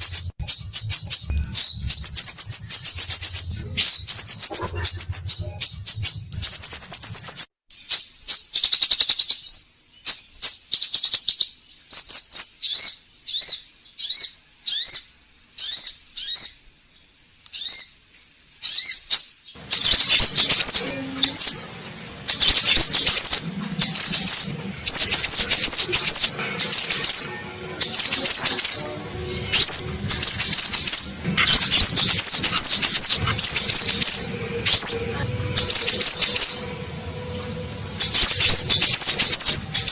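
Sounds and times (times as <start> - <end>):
low hum: 0.0 - 7.5, 19.6 - 39.9
bird whistled chirps: 0.0 - 16.6, 18.6 - 21.7, 22.3 - 36.9, 38.0 - 39.9.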